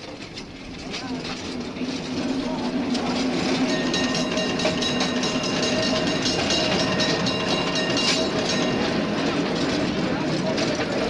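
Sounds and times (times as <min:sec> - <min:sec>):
streetcar rumbling hum: 0:00.0 - 0:11.0
wheels clicking on rails: 0:00.0 - 0:11.0.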